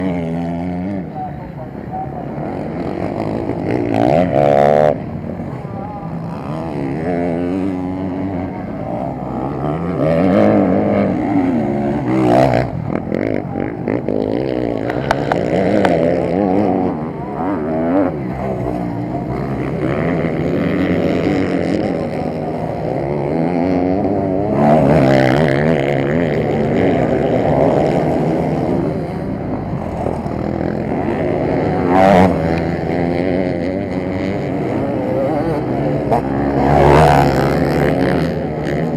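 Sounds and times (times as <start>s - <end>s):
motocross bikes revving: 0.0s - 38.9s.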